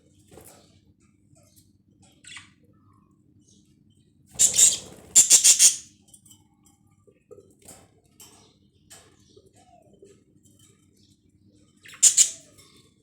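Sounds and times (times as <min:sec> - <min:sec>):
budgerigars squawking: 0:04.4 - 0:05.8, 0:11.9 - 0:12.5.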